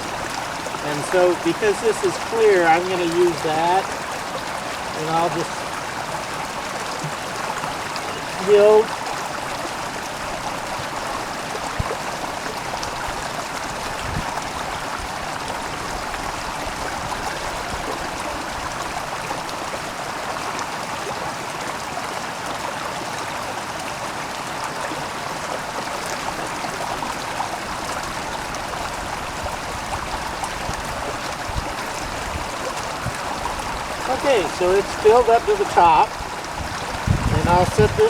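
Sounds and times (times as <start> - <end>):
running water filling bottle: 0.0 - 19.6, 25.0 - 38.0.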